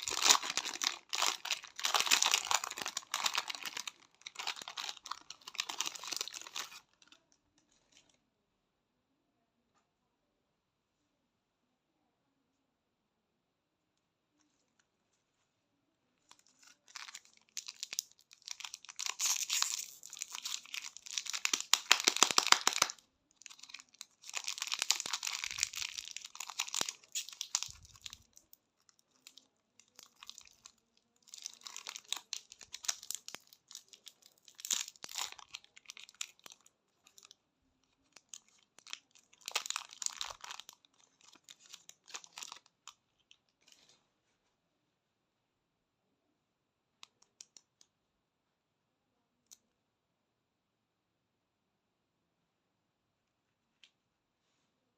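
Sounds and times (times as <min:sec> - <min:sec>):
candy wrappers crinkling: 0:00.0 - 0:08.1, 0:16.2 - 0:43.9.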